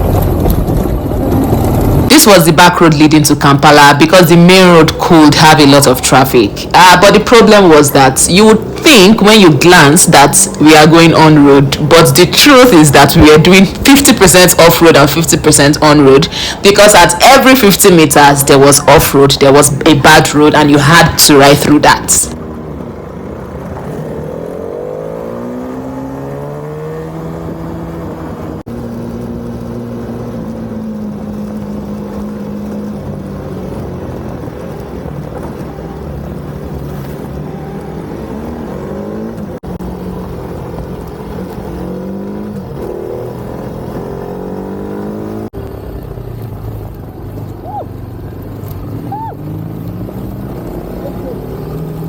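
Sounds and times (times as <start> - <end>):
motorcycle engine revving: 0.0 - 2.7, 21.8 - 52.0.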